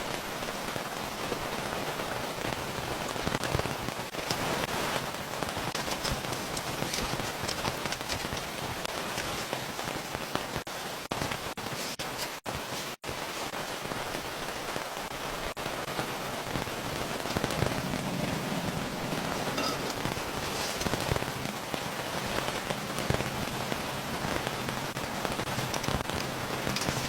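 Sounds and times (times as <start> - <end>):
raindrop hits: 0.0 - 27.0
steady rain falling: 0.0 - 27.0.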